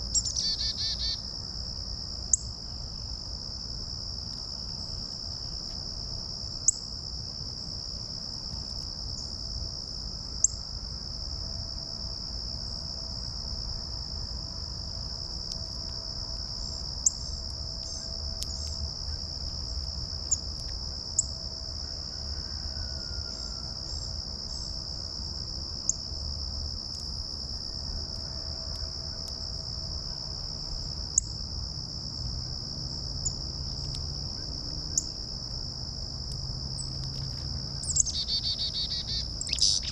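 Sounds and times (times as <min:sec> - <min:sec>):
insects buzzing: 0:00.0 - 0:39.9
low rumble of breeze: 0:00.0 - 0:39.9
faint bird chirps: 0:00.1 - 0:01.2, 0:37.9 - 0:39.9.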